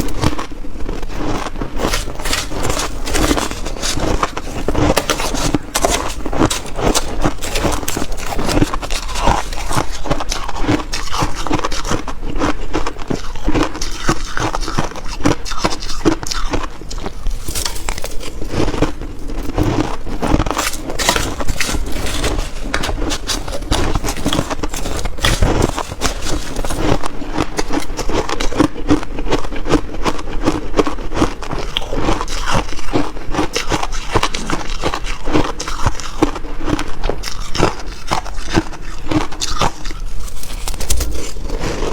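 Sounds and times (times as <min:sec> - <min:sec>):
chewing crunchy shaved ice: 0:00.0 - 0:41.9.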